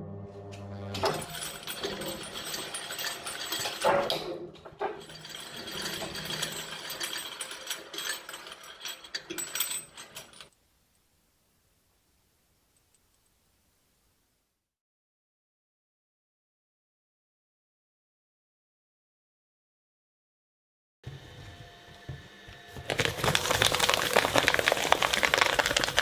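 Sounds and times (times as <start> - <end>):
shredder crunching and grinding: 22.8 - 26.0.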